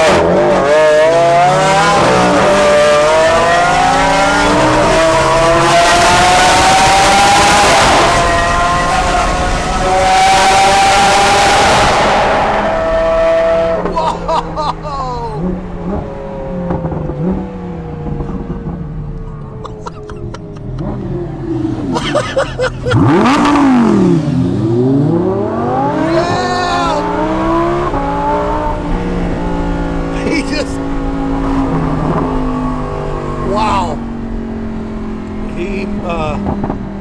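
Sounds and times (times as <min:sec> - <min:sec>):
sports car engine revving: 0:00.0 - 0:14.0, 0:15.4 - 0:37.0.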